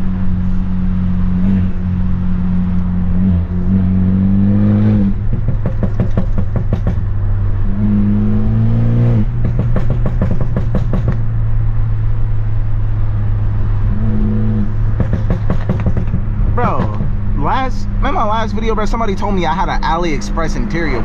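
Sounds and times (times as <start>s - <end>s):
car engine revving: 0.0s - 21.0s
crackling exhaust pops: 5.2s - 7.1s, 9.3s - 11.3s, 14.9s - 17.2s.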